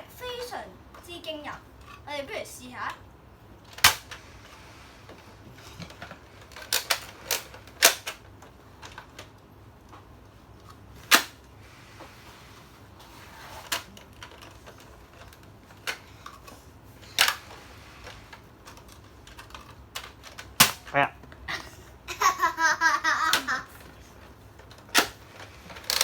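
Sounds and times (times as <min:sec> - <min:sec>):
toy dart blaster snapping clicks: 0:11.1 - 0:11.4, 0:20.0 - 0:20.9, 0:24.9 - 0:25.2.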